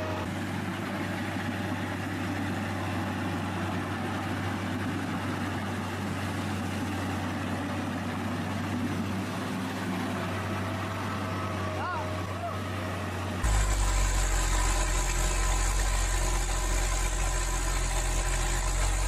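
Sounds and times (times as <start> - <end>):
machine engine running: 12.6 - 19.0.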